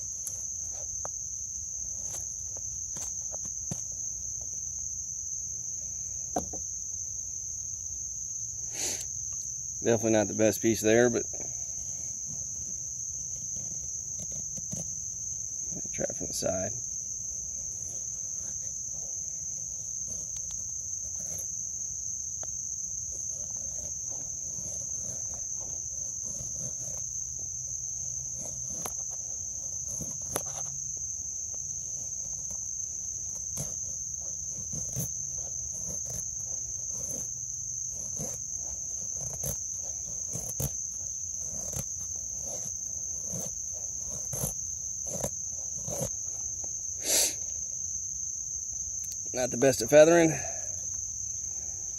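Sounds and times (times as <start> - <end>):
high-pitched insect drone: 0.0 - 51.9
knife shaving wood: 9.8 - 50.0.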